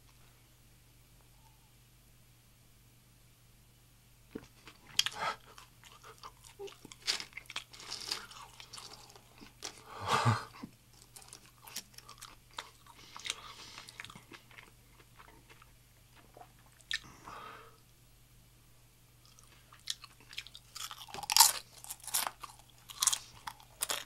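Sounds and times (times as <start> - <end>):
man chewing crunchy food: 4.3 - 17.2, 19.2 - 24.0.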